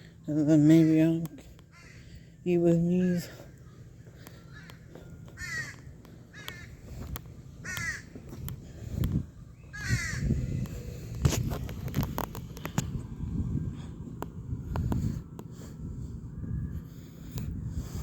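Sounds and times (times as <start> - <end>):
crow cawing: 1.7 - 2.1, 4.5 - 4.8, 5.4 - 6.8, 7.6 - 8.1, 9.7 - 10.3
footsteps and phone handling: 4.1 - 9.2, 11.0 - 13.0.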